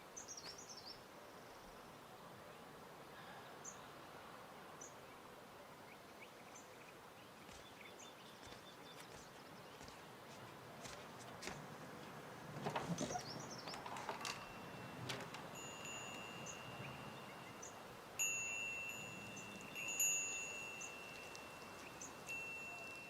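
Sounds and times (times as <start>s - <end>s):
metal chimes ringing: 14.0s - 23.0s.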